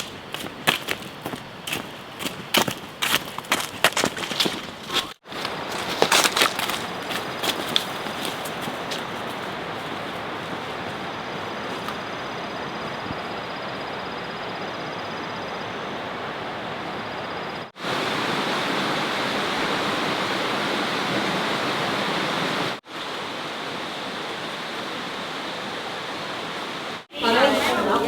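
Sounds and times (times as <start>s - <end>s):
rushing flowing water: 5.2s - 12.6s, 16.1s - 28.0s.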